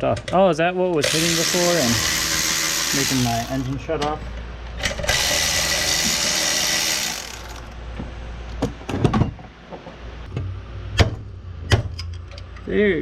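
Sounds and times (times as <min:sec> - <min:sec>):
power tool running: 0:01.0 - 0:03.8, 0:05.0 - 0:07.8.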